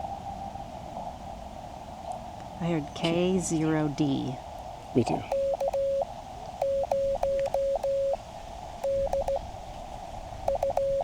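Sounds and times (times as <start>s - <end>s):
receiver hiss: 5.2s - 9.6s, 10.4s - 11.0s
morse code tone: 5.3s - 8.2s, 8.8s - 9.4s, 10.5s - 11.0s.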